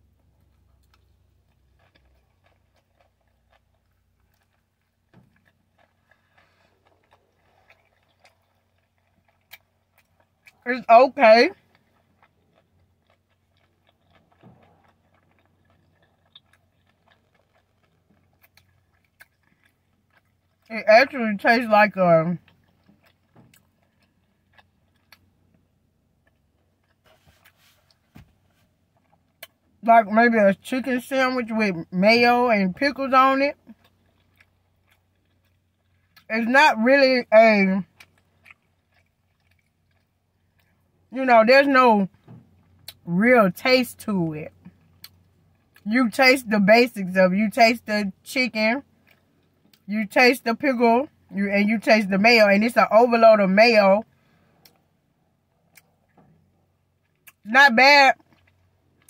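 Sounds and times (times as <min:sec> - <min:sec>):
person chewing food: 0:00.0 - 0:10.6, 0:11.5 - 0:20.7, 0:22.4 - 0:29.8, 0:33.6 - 0:36.3, 0:37.8 - 0:41.1, 0:44.6 - 0:45.9, 0:48.9 - 0:49.9, 0:54.0 - 0:57.5, 0:58.2 - 0:59.0.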